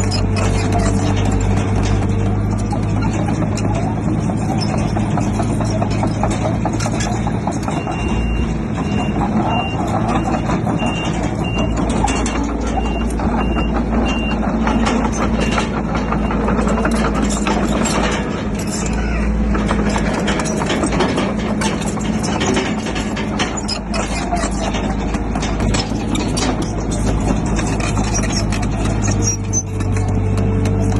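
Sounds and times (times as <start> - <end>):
heavy diesel machinery running: 0.0 - 30.9
metal clanking: 0.0 - 30.9
reversing alarm beeping: 7.7 - 16.4.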